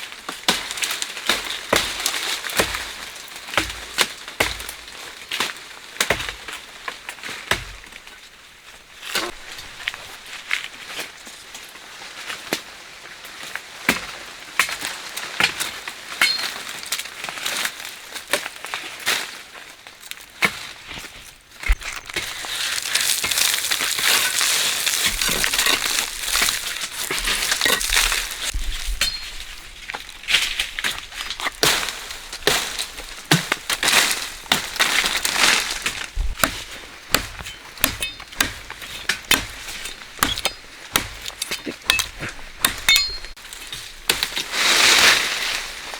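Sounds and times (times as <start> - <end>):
dry vegetation cracking: 0.0 - 45.9
dry vegetation rustling: 0.0 - 45.9
stems and twigs snapping: 19.9 - 45.3.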